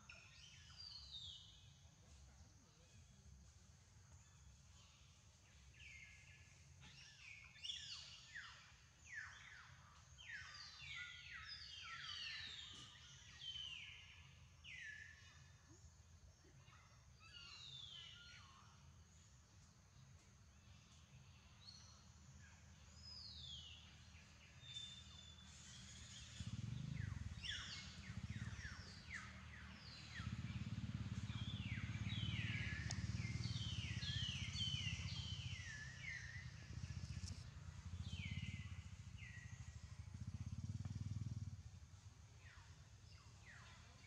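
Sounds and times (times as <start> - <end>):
birds chirping: 23.0 - 41.7.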